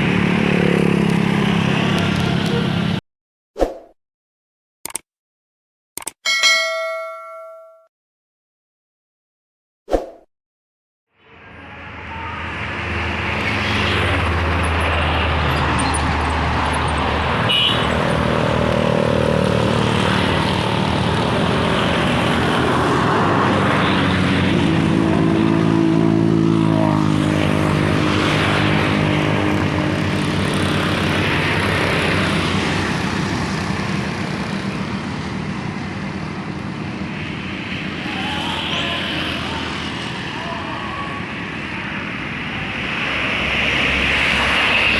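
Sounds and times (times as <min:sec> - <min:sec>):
trucks and traffic passing: 0:00.0 - 0:03.0, 0:11.2 - 0:44.9
sharp click: 0:04.8 - 0:05.1, 0:06.0 - 0:06.2.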